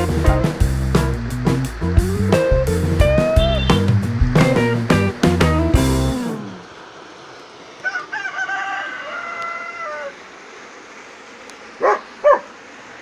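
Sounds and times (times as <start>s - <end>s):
animal calling: 2.1s - 6.7s.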